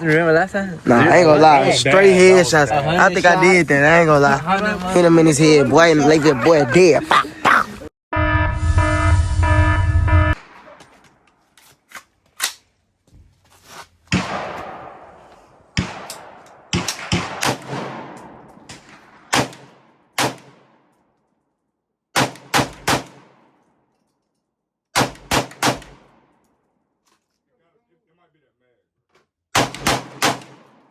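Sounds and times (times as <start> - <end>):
echoing gunshots: 14.1 - 20.9, 22.2 - 23.6, 25.0 - 26.4, 29.6 - 30.9.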